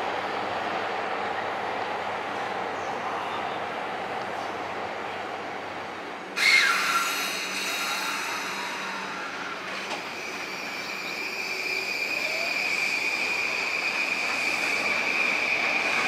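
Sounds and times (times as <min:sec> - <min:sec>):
electric train running on tracks: 0:00.0 - 0:16.0
high-pitched wheel squeal: 0:06.4 - 0:16.0.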